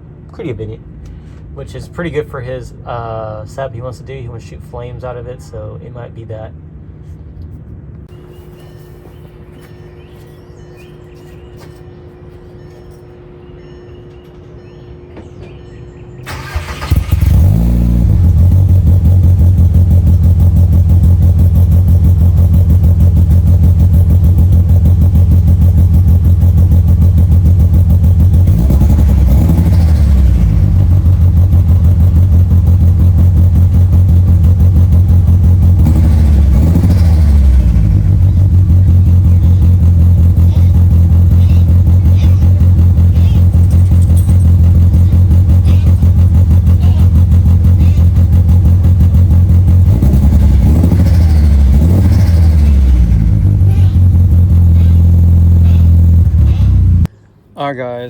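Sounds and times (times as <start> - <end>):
car engine starting and idling: 16.2 - 57.1
car engine revving: 16.3 - 57.1.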